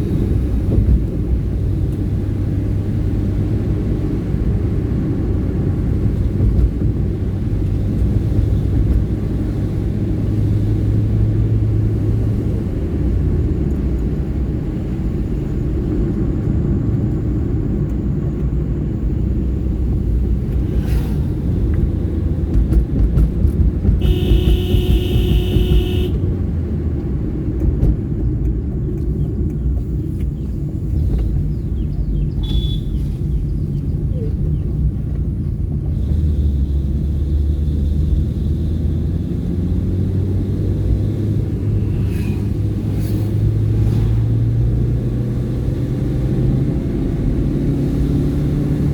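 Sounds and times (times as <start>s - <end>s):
car engine and road rumble: 0.0s - 48.9s
car horn: 24.0s - 26.3s, 32.4s - 33.0s.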